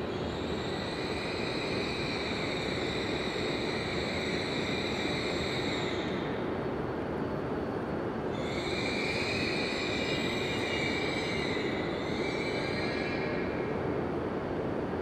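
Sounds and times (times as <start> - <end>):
train brakes squealing: 0.0 - 6.5, 8.4 - 13.9
train running noise: 0.0 - 15.0.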